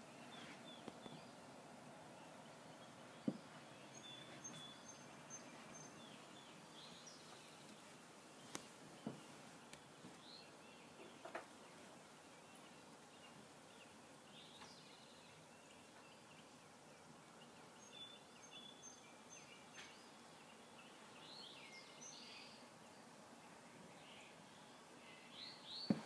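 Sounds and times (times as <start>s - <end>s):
birds chirping: 0.0s - 26.0s
steady hiss: 0.0s - 26.0s.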